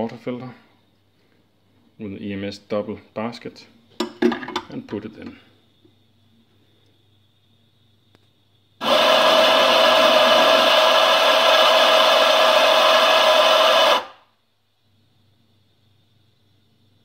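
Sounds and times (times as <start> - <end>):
coffee grinder grinding: 8.8 - 14.2.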